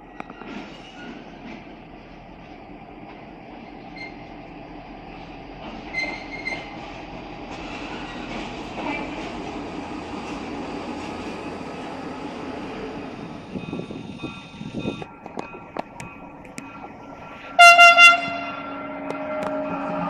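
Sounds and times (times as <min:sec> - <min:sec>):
train wheels rumbling on rails: 0:00.0 - 0:20.0
faint high-pitched wheel squeals: 0:03.9 - 0:04.3, 0:05.9 - 0:06.7.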